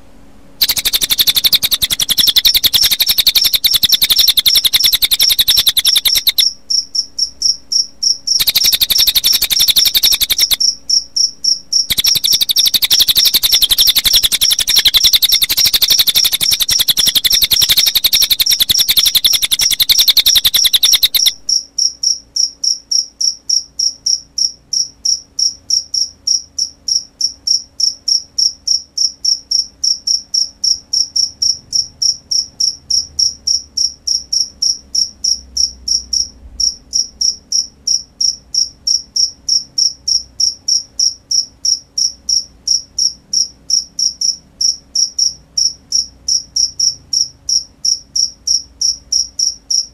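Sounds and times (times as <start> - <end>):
bird song with rapid high trills: 0.6 - 21.7
cricket chirping: 0.6 - 49.9.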